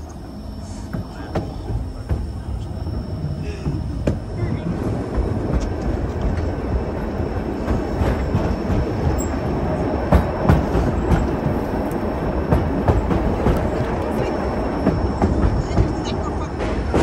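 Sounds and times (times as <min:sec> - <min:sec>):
track clicks and knocks: 0:00.0 - 0:17.0
train wheels rumbling on rails: 0:00.0 - 0:17.0.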